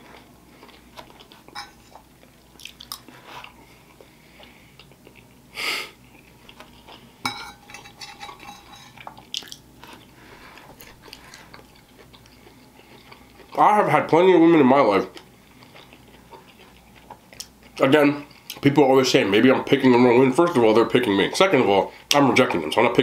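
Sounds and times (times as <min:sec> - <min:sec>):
person chewing food: 0:00.0 - 0:07.2, 0:09.0 - 0:13.6, 0:15.0 - 0:18.7.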